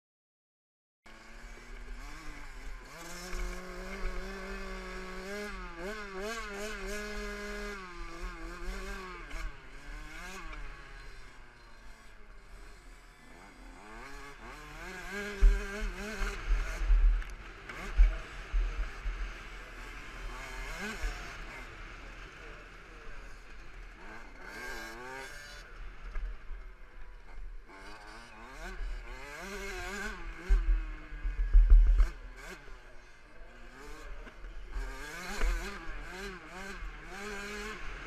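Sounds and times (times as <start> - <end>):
two-stroke engine revving: 1.1 - 38.0
wind rumble on microphone: 30.5 - 32.2.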